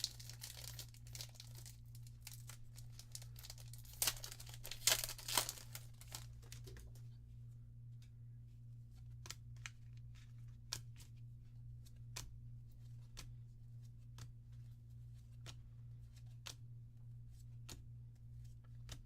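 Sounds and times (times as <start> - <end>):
trading cards flipped by hand: 8.9 - 11.2, 11.8 - 16.6, 17.2 - 19.0.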